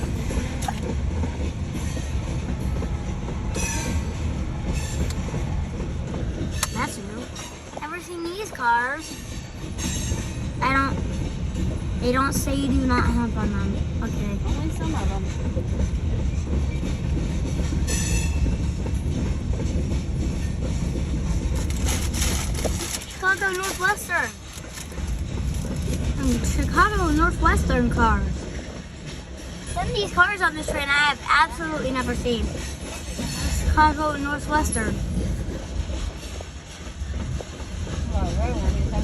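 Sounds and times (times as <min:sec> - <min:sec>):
train cars rumbling and clattering: 0:00.0 - 0:39.0.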